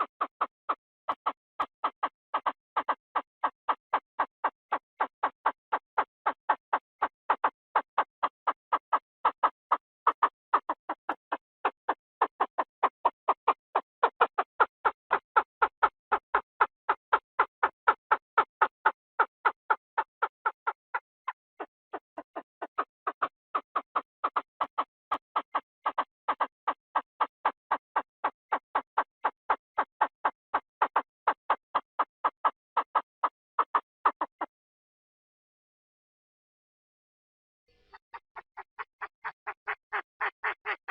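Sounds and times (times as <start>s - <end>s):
quail calling: 1.2s - 3.5s, 14.0s - 23.6s, 24.2s - 28.8s, 37.7s - 40.9s.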